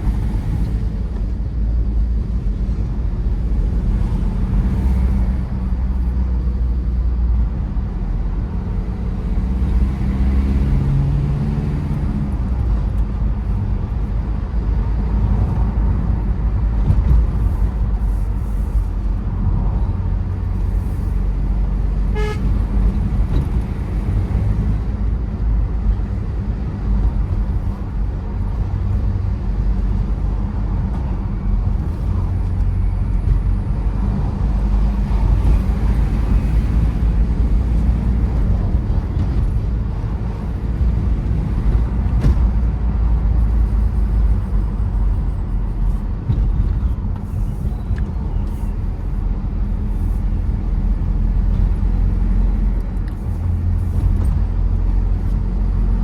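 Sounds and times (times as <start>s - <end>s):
diesel engine and tyre rumble: 0.0s - 56.0s.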